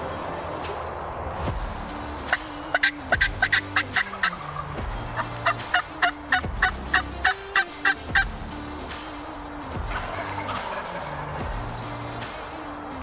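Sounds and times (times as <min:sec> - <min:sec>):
low background music: 0:00.0 - 0:13.0
wild turkey calling: 0:02.3 - 0:08.3, 0:09.9 - 0:11.4.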